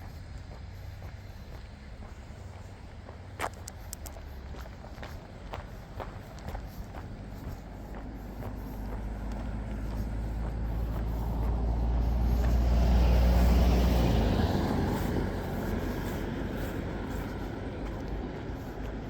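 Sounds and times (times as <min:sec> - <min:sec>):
vehicle passing by: 0:00.0 - 0:19.0.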